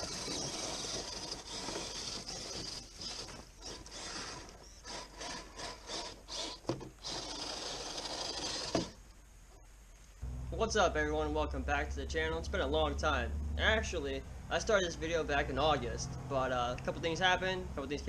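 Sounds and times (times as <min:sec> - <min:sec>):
toy car motor whirring: 0:00.0 - 0:09.0
tyres scraping on rough ground: 0:00.0 - 0:09.0.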